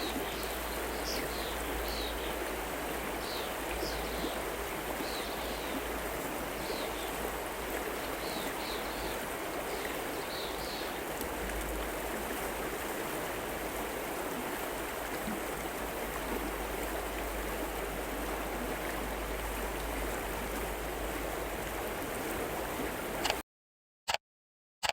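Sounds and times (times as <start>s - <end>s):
river water flowing: 0.0s - 23.4s.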